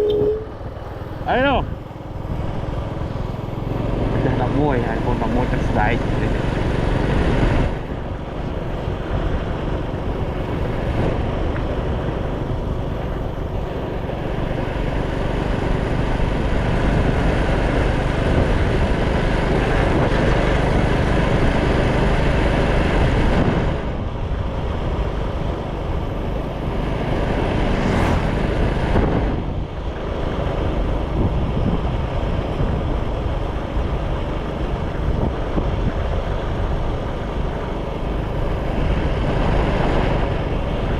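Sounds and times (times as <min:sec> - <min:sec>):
motorcycle engine: 0:00.0 - 0:31.2
wind on microphone: 0:03.5 - 0:40.9.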